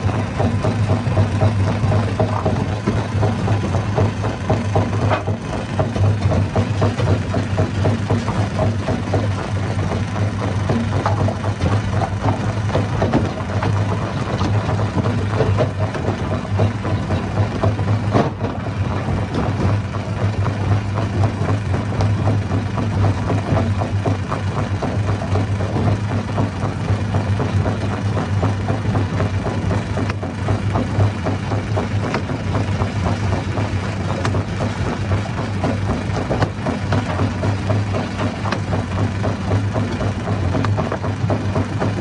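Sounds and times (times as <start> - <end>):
low engine drone: 0.0 - 42.0
rock clattering in crusher: 10.7 - 20.5.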